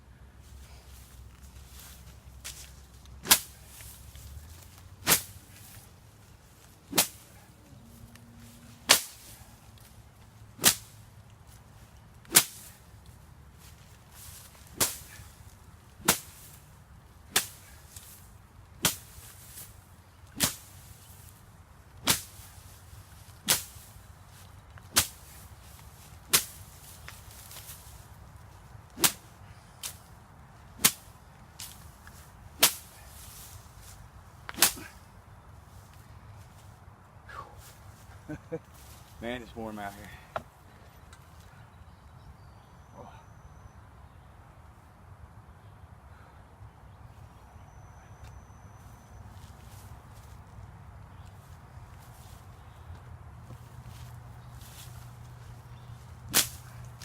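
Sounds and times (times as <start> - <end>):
sapling whipping through grass: 0.9 - 16.7, 17.3 - 21.4, 22.0 - 36.7, 53.4 - 57.0.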